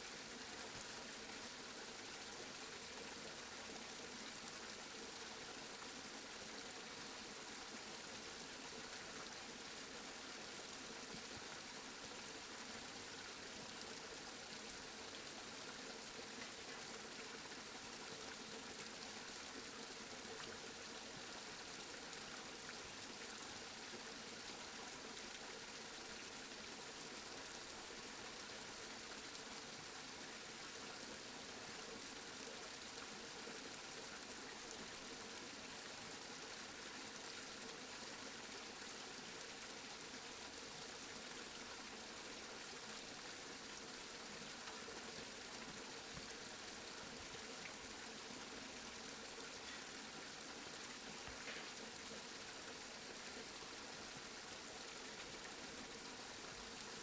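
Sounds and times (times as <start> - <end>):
steady rain falling: 49.4 - 52.4.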